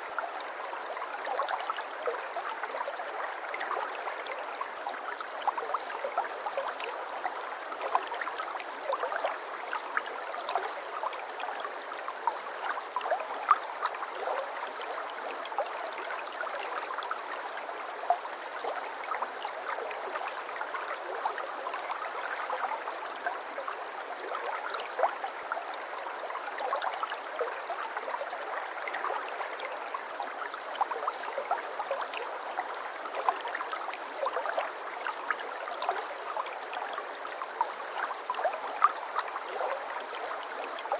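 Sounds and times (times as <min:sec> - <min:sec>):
brook babbling over stones: 0:00.0 - 0:40.9.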